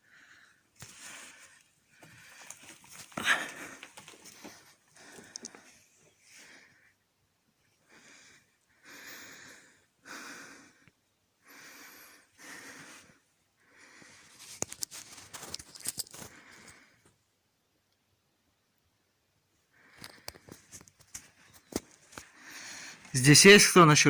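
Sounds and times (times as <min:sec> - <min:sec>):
man breathing hard: 0:00.0 - 0:07.0, 0:07.8 - 0:14.4, 0:16.1 - 0:17.1, 0:22.2 - 0:23.1.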